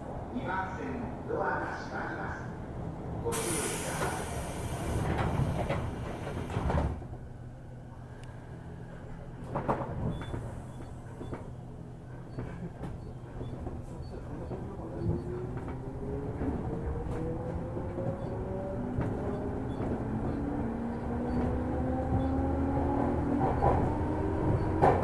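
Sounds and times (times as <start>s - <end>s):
train doors closing: 3.3s - 7.2s, 9.0s - 25.0s.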